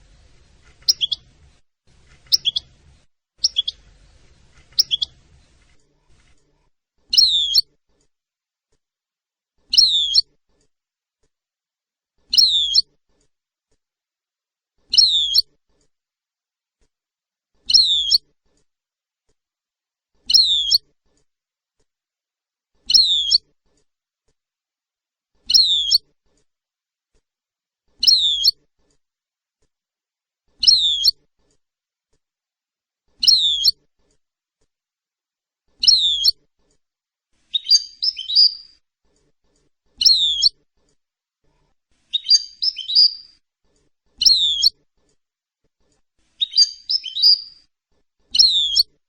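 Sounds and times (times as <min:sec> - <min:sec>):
small bird chirping: 0:00.0 - 0:06.4, 0:07.0 - 0:08.1, 0:09.6 - 0:10.4, 0:12.3 - 0:13.3, 0:14.8 - 0:15.9, 0:17.6 - 0:18.6, 0:20.2 - 0:21.3, 0:22.8 - 0:23.8, 0:25.4 - 0:26.4, 0:28.0 - 0:28.7, 0:30.6 - 0:31.3, 0:33.2 - 0:33.9, 0:35.7 - 0:36.8, 0:37.4 - 0:45.2, 0:45.9 - 0:49.0
high two-part bird chirp: 0:00.9 - 0:01.2, 0:02.3 - 0:02.7, 0:03.4 - 0:03.8, 0:04.8 - 0:05.1, 0:07.1 - 0:07.7, 0:37.5 - 0:38.8, 0:40.0 - 0:40.6, 0:42.1 - 0:43.4, 0:46.4 - 0:47.6.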